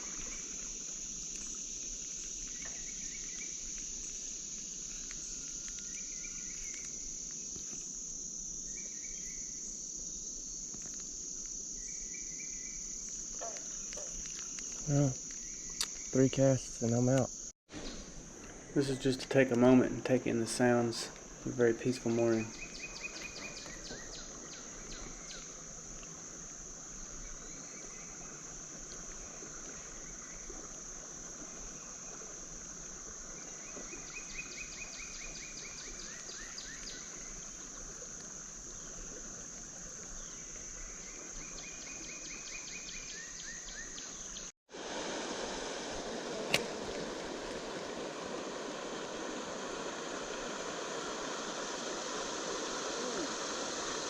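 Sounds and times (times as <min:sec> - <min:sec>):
high insect drone: 0:00.0 - 0:54.0
river water rushing: 0:44.8 - 0:54.0
sharp click: 0:46.5 - 0:46.7.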